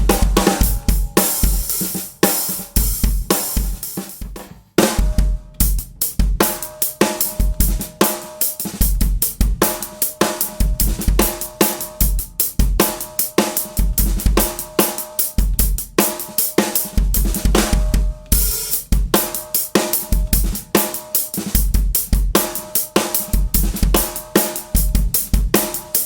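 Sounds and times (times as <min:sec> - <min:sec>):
kick drum: 0:00.0 - 0:01.6, 0:02.8 - 0:06.4
hi-hat and cymbal strokes: 0:00.0 - 0:04.2, 0:18.4 - 0:26.0.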